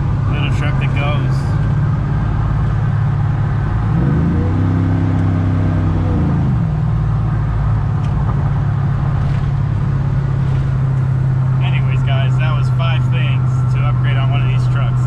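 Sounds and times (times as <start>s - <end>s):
road rumble: 0.0s - 15.0s
pickup truck engine running: 6.7s - 15.0s.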